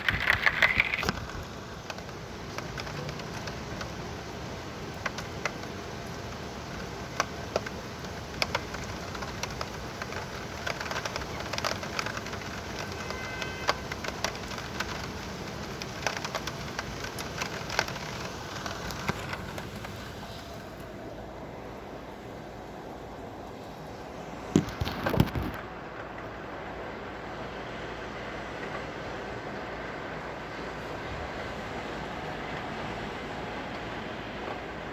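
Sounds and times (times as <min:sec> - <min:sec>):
raindrops tapping a surface: 0:00.0 - 0:20.0, 0:24.5 - 0:26.2
heavy rain hiss: 0:00.0 - 0:34.9.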